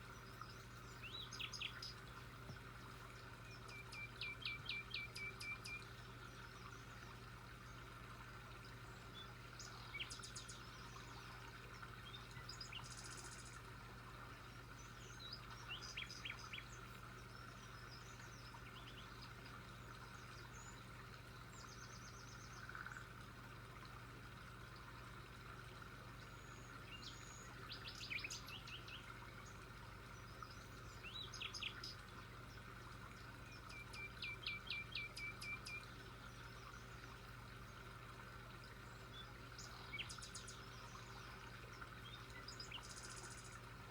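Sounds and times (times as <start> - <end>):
faint background hum: 0.0 - 43.9
birds chirping and trilling: 38.9 - 43.6.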